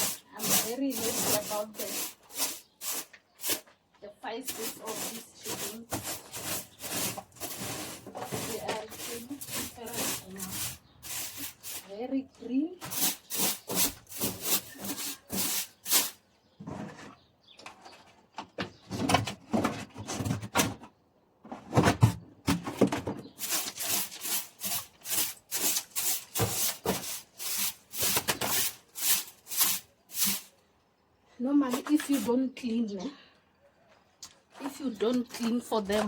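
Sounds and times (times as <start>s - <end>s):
scraping strokes on floor: 0.0s - 3.7s, 4.5s - 12.0s, 12.8s - 16.2s, 23.4s - 30.6s, 31.7s - 32.4s.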